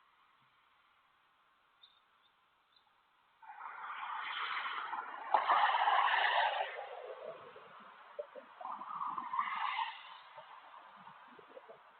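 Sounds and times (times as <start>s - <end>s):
car passing on highway: 3.2s - 11.9s.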